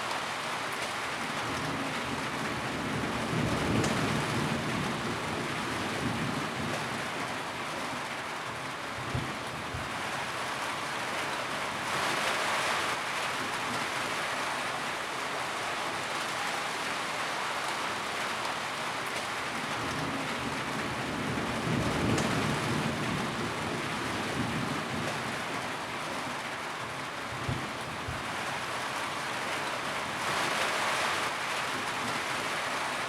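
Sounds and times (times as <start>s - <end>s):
rain on a tin roof: 0.0s - 33.0s.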